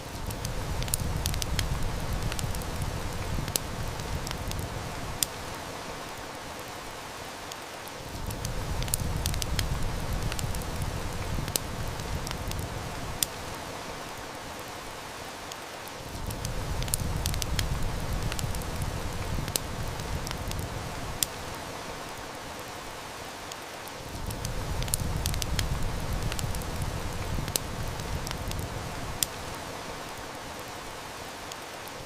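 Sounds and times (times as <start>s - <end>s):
heavy rain hissing: 0.0s - 32.0s
wood fire crackling: 0.0s - 32.0s.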